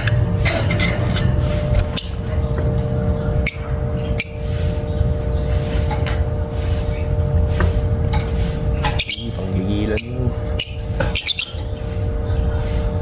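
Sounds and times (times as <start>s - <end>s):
steady low rumble: 0.0s - 13.0s
lovebirds chirping: 1.8s - 7.5s, 8.3s - 13.0s.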